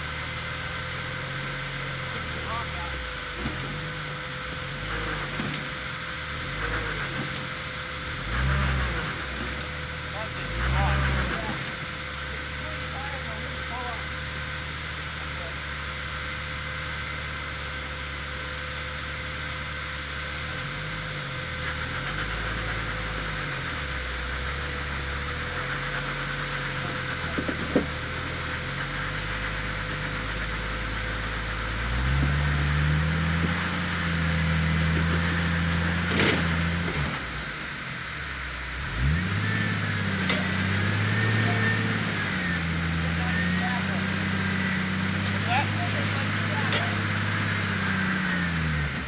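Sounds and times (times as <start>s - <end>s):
engine pitch rising and falling: 38.8s - 49.0s.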